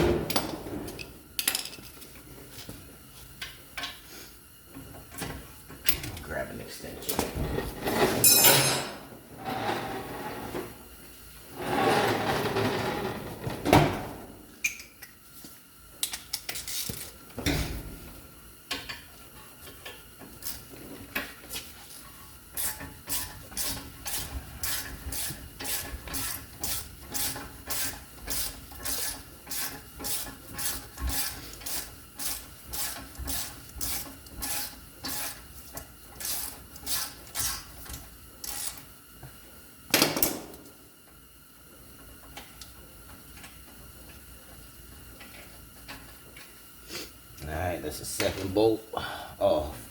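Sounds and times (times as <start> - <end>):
metal tools clattering: 8.1 - 9.0.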